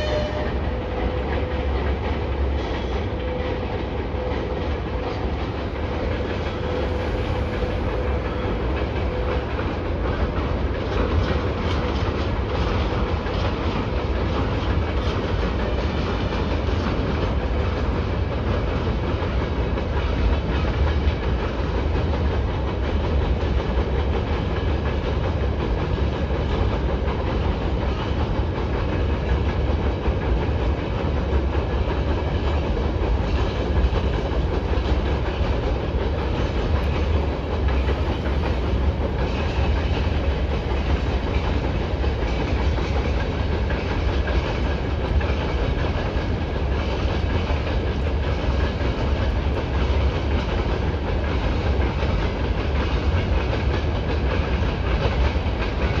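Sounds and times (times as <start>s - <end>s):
freight train rumbling over bridge: 0.0s - 56.0s.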